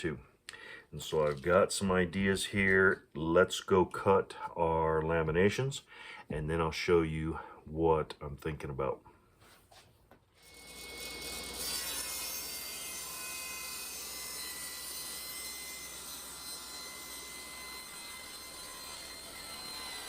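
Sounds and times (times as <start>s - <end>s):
power saw whine: 10.4s - 20.0s.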